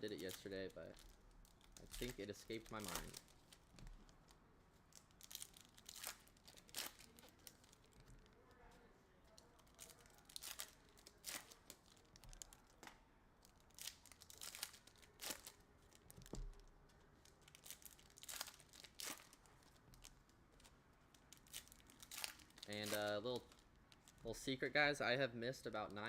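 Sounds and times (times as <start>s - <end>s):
foil wrappers tearing and crinkling: 0.0s - 3.7s, 5.0s - 8.0s, 9.7s - 12.6s, 13.6s - 16.3s, 17.2s - 20.2s, 21.2s - 24.2s.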